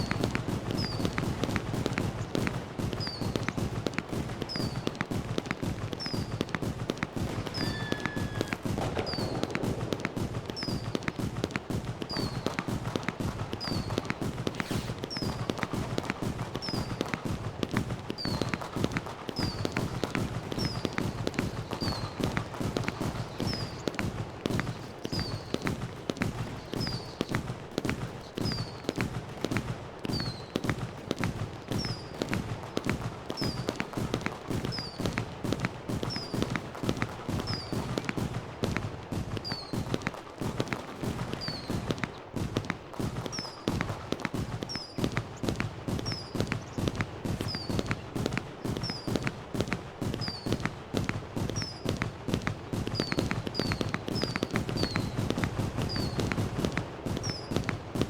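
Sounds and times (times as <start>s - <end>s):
fireworks crackling: 0.0s - 58.0s
high falling chirp: 7.5s - 9.4s.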